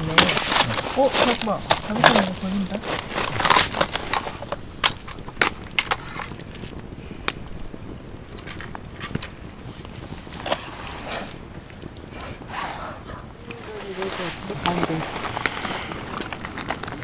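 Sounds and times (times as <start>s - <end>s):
light scraping: 8.4s - 17.0s.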